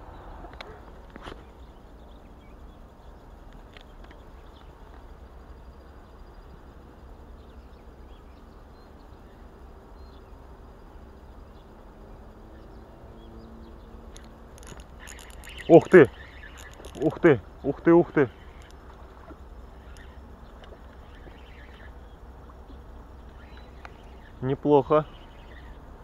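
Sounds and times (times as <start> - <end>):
faint insect buzz: 0.0 - 26.0
low steady rumble: 0.0 - 26.0
faint bird chirps: 11.2 - 26.0.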